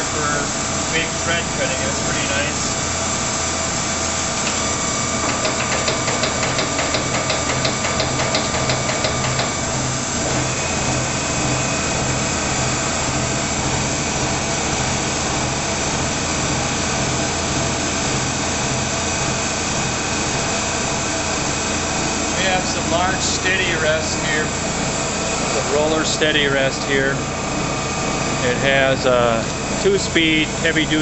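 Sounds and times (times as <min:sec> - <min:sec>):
lathe running: 0:00.0 - 0:31.0
fast regular ticking: 0:04.5 - 0:09.7.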